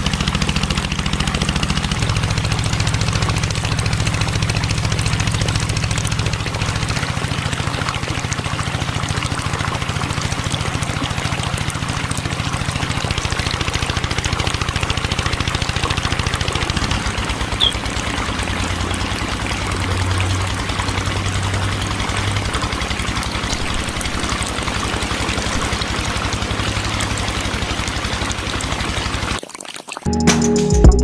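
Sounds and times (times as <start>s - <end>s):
water pouring and trickling: 0.0s - 30.1s.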